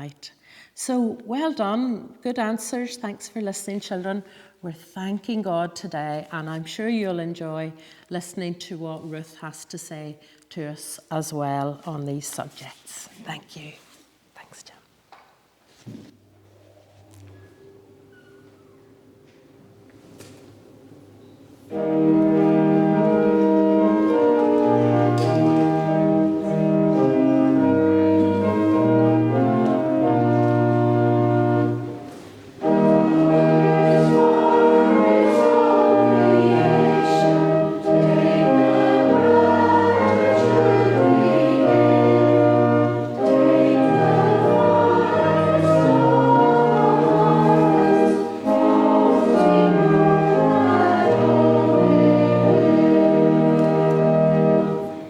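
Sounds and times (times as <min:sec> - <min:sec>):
church organ playing a hymn: 0:17.2 - 0:55.0
congregation singing: 0:17.3 - 0:55.0.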